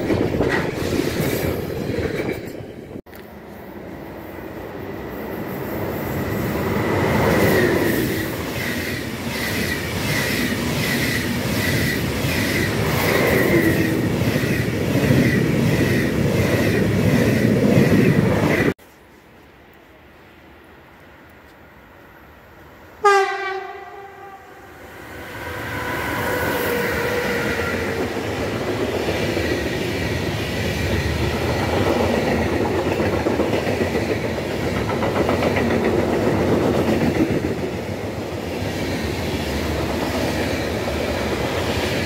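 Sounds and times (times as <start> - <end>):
train wheels clicking: 26.2 - 42.0.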